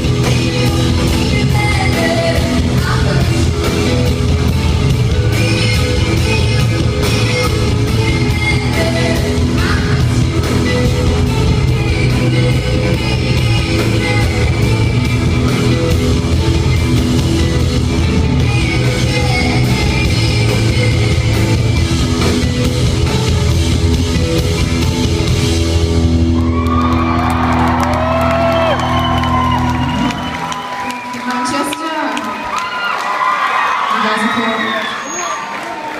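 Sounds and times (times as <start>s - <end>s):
rock band playing live: 0.0s - 32.6s
crowd whooping: 26.0s - 35.9s.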